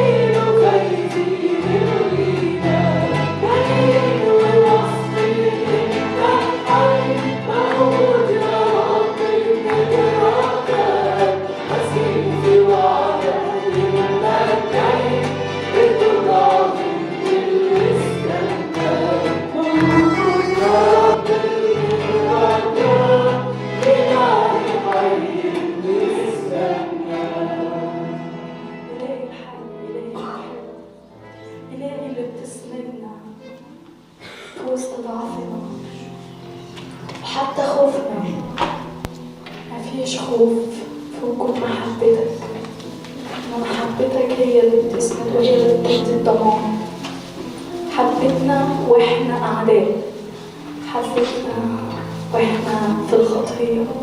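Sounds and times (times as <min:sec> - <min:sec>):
group of voices singing: 0:00.0 - 0:29.0
held bass notes: 0:19.6 - 0:21.5.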